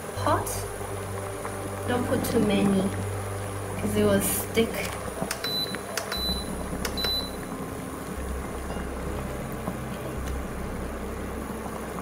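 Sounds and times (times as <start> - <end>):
low electric hob hum: 0.0 - 12.0
water boiling in a pot: 0.0 - 12.0.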